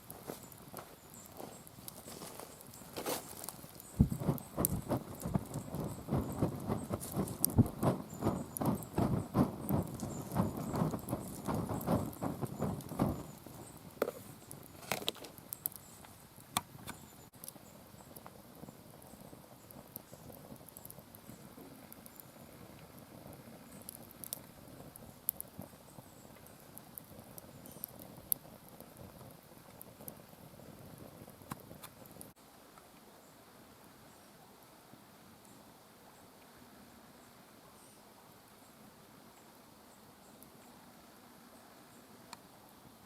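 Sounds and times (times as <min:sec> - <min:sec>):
wood fire crackling and popping: 0:00.0 - 0:32.4
faint steady hiss: 0:00.0 - 0:43.0.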